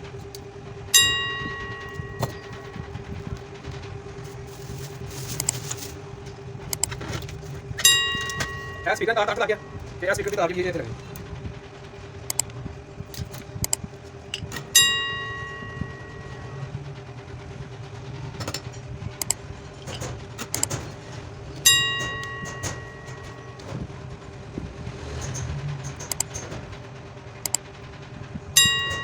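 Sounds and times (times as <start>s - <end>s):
steady low hum: 0.0s - 29.0s
sharp bell-like ring: 1.0s - 2.6s, 14.8s - 16.6s
clicks and taps handling wires: 1.8s - 10.4s, 19.2s - 23.9s.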